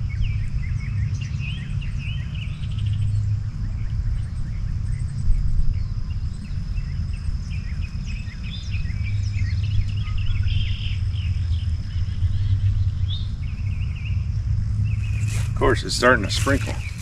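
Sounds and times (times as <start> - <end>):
insect high-pitched drone: 0.0 - 17.0
low rumble: 0.0 - 17.0
birds chirping: 5.8 - 17.0.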